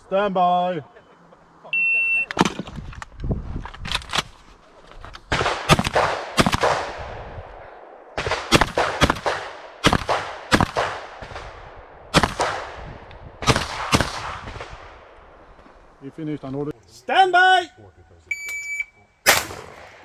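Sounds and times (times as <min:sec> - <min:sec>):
shotgun shots echoing: 0:19.2 - 0:20.0.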